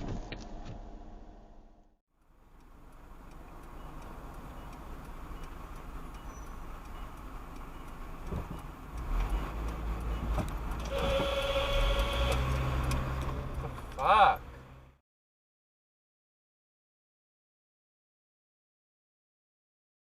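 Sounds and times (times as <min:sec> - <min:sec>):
vehicle and road rumble: 0:00.0 - 0:15.0
steady horn-like tone: 0:10.9 - 0:12.7.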